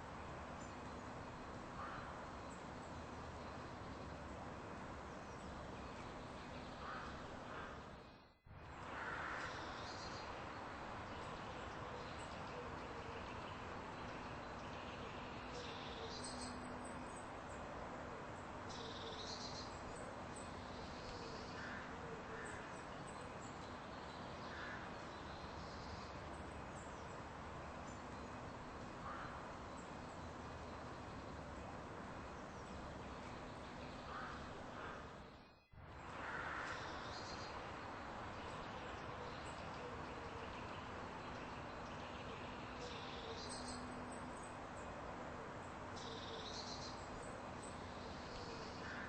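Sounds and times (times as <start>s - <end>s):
outdoor background noise: 0.0s - 49.0s
faint bird calls: 1.7s - 2.7s, 6.5s - 8.2s, 29.0s - 30.0s, 33.8s - 37.7s, 46.0s - 49.0s.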